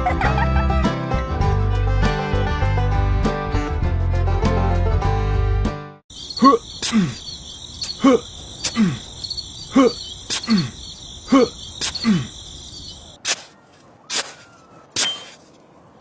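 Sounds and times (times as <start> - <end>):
crickets chirping: 6.1 - 13.2.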